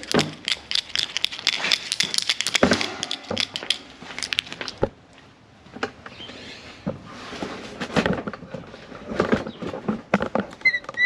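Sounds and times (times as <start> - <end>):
small hard objects clicking and rattling: 0.0 - 4.9.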